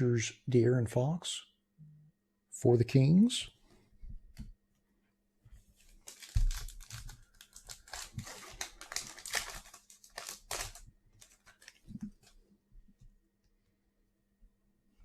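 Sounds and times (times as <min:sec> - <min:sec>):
plastic wrapper tearing and crinkling: 0:06.0 - 0:12.3.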